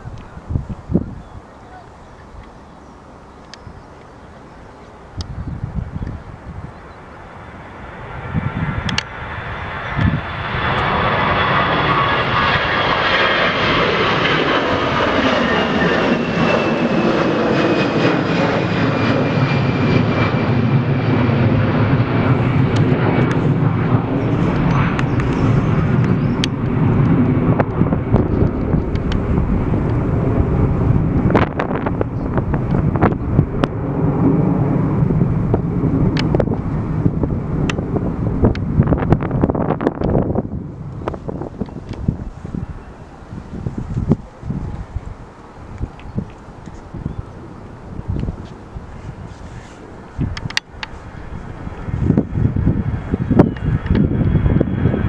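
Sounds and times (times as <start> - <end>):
jet airliner passing: 0.0 - 55.0.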